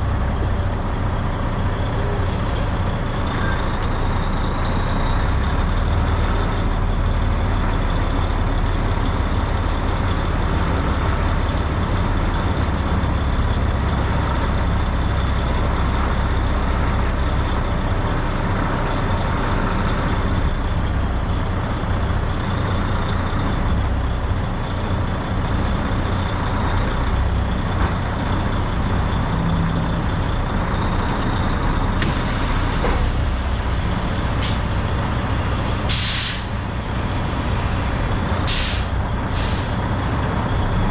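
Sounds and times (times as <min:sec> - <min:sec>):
truck diesel engine rumble: 0:00.0 - 0:40.9
air brake hiss: 0:02.0 - 0:02.8, 0:32.0 - 0:39.8
high engine whine: 0:19.0 - 0:40.9.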